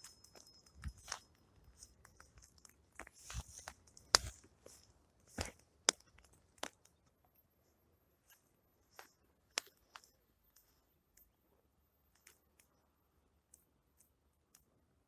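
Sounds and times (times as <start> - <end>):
campfire crackling and popping: 2.0 - 4.5, 5.4 - 6.9.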